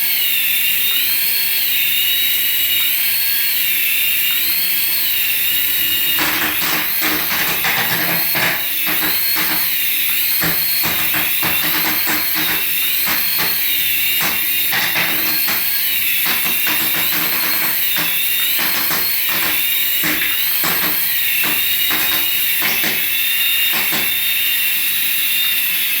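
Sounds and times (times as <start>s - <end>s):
toy electric motor whirring: 0.0s - 26.0s
rapid irregular clicks and knocks: 5.0s - 24.4s.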